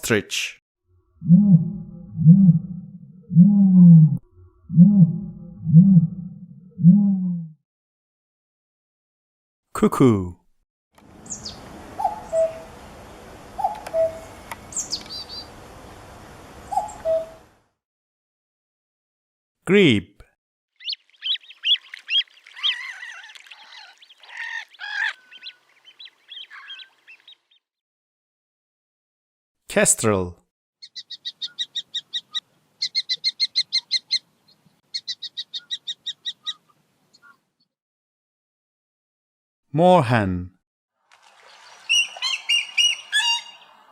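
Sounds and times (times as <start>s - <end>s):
cuckoo calling: 11.3s - 12.8s, 13.5s - 15.6s, 16.6s - 17.5s, 20.8s - 27.5s, 34.9s - 37.4s, 41.7s - 43.8s
small bird chirps: 13.6s - 15.5s, 20.8s - 27.6s, 30.8s - 37.4s.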